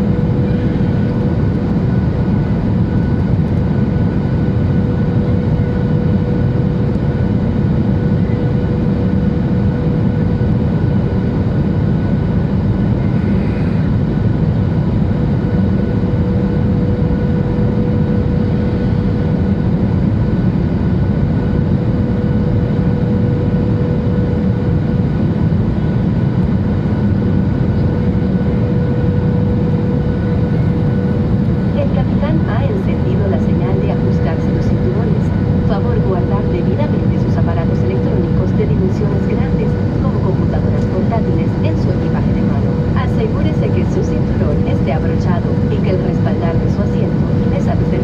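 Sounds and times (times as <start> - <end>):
airplane cabin airflow and engines: 0.0 - 48.0
faint steady hum: 28.4 - 48.0.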